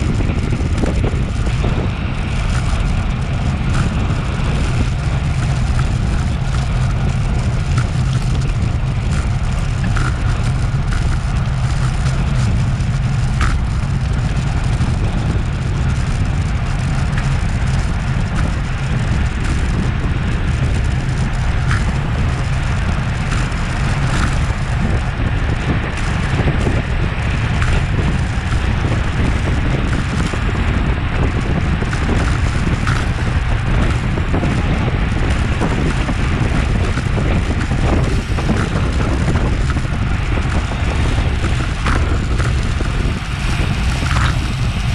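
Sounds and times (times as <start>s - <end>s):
tyre and road noise: 0.0s - 44.9s
wind rumble on microphone: 0.0s - 44.9s.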